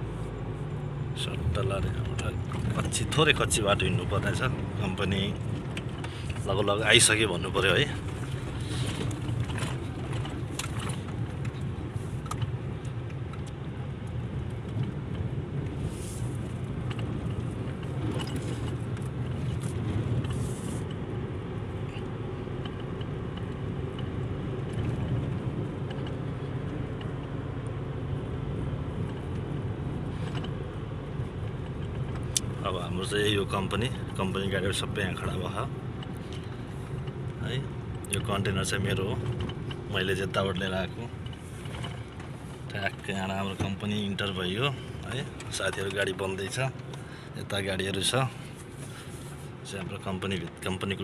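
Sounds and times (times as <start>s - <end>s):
vehicle engine and tyre rumble: 0.0s - 51.0s
rattles and clicks: 1.6s - 15.8s, 16.4s - 21.0s, 30.1s - 30.6s, 31.2s - 48.9s.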